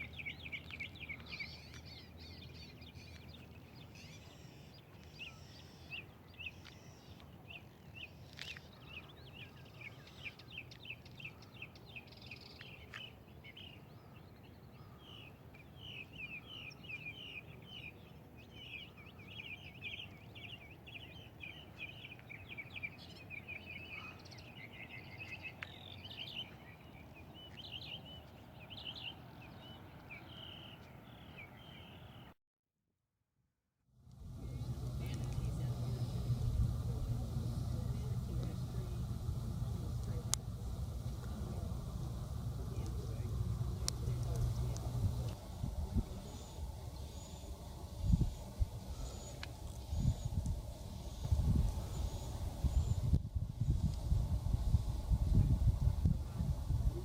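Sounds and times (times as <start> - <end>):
birds chirping: 0.0 - 32.3, 34.2 - 57.0
low background rumble: 34.0 - 57.0.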